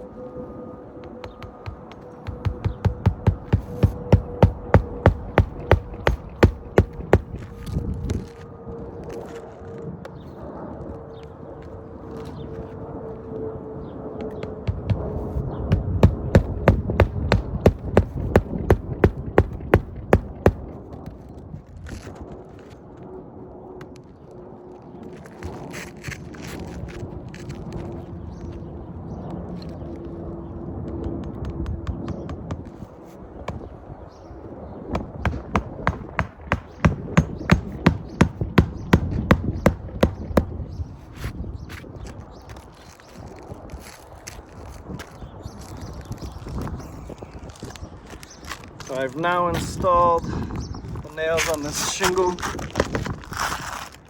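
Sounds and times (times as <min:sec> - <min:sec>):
hammer striking nail: 0:01.2 - 0:07.4, 0:14.6 - 0:20.6, 0:35.0 - 0:40.6.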